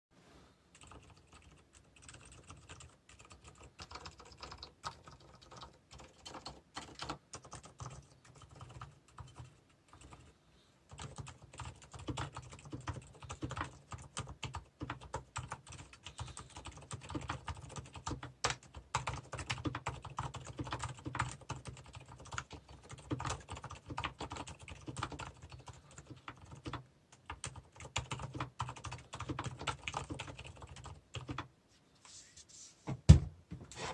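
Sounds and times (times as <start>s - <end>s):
mechanical keyboard typing: 0.7s - 10.3s, 10.9s - 31.5s.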